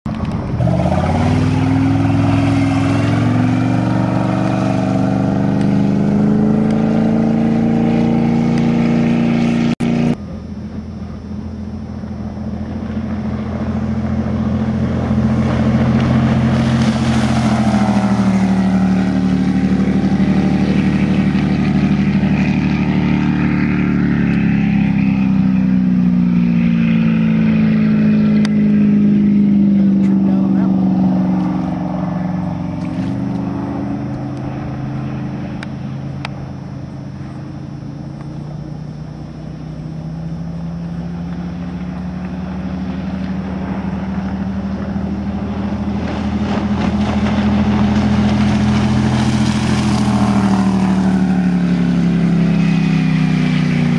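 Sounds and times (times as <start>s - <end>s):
speedboat engine roaring: 0.0s - 53.9s
rushing wind and water: 0.1s - 53.9s.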